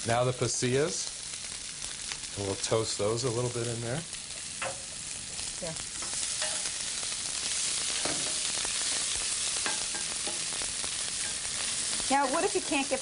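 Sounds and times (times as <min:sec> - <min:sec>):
onions sizzling in hot oil: 0:00.0 - 0:13.0
spatula scraping a pan: 0:06.0 - 0:06.8, 0:07.8 - 0:13.0.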